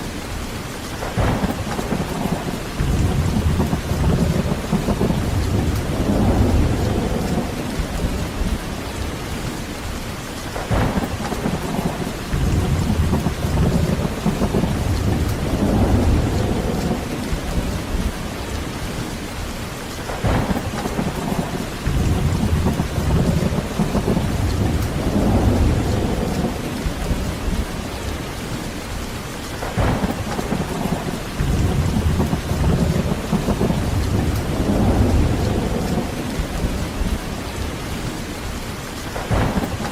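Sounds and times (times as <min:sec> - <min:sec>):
heavy rain falling: 0:00.0 - 0:39.9
rolling thunder: 0:01.0 - 0:09.9, 0:10.5 - 0:19.5, 0:20.1 - 0:29.0, 0:29.6 - 0:39.9.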